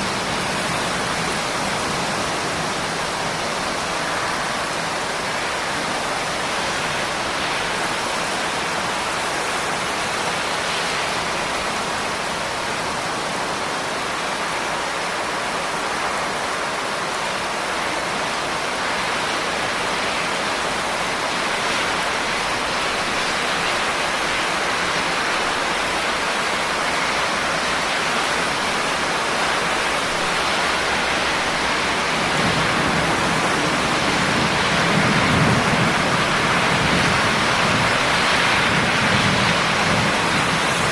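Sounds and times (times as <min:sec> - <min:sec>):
heavy rain: 0:00.0 - 0:40.9
low rumble of thunder: 0:32.0 - 0:40.9.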